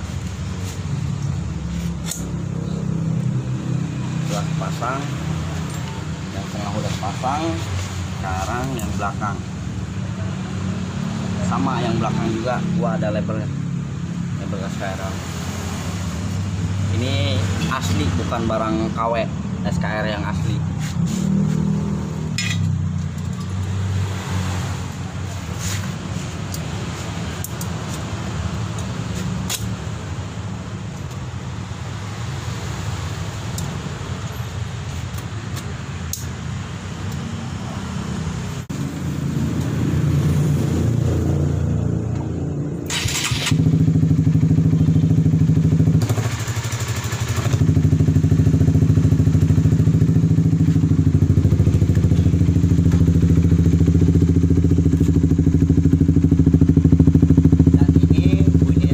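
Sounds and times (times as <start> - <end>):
motorcycle engine idling: 42.9 - 58.9.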